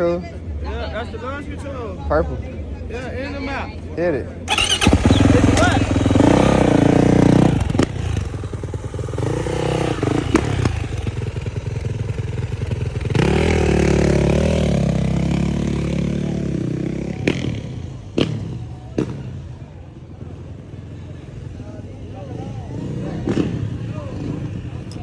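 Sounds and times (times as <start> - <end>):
dirt bike engine revving: 4.5 - 19.3, 22.7 - 25.0.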